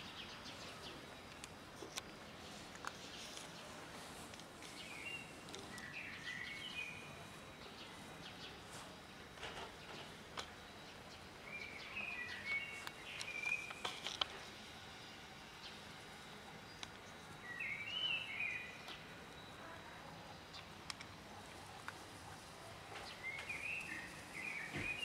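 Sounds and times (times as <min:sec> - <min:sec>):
songbird twittering: 0:04.7 - 0:08.6, 0:10.8 - 0:13.8, 0:17.4 - 0:19.5.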